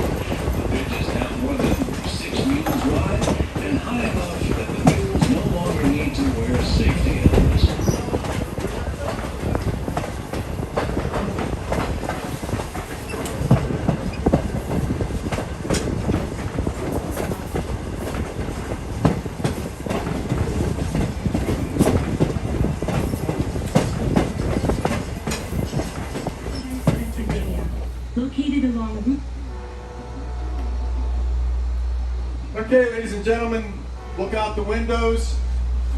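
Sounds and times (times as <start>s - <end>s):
wheels clicking over rail joints: 0.0s - 27.9s
train cars rattling: 0.0s - 35.9s
train wheels rumbling on rail: 0.0s - 35.9s.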